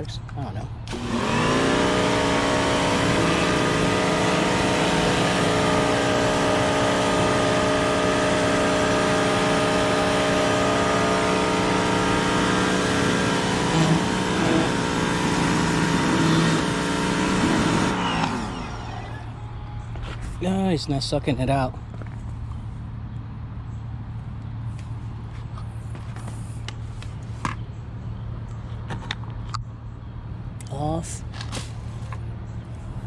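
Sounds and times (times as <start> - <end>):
pressure washer motor humming: 0.8 - 19.4
water spray hissing: 1.2 - 17.9.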